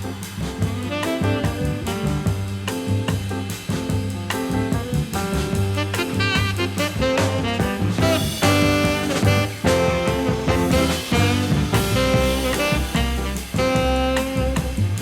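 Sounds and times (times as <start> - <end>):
jazz swing music with horns: 0.0 - 15.0.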